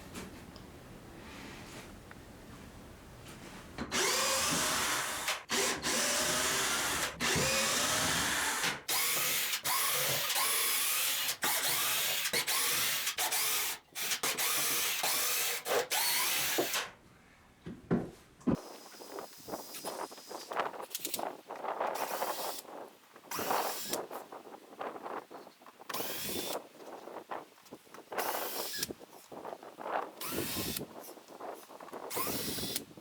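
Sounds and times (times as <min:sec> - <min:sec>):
power drill motor whine: 0:03.9 - 0:13.6, 0:26.0 - 0:26.6, 0:30.2 - 0:30.8, 0:32.1 - 0:32.9.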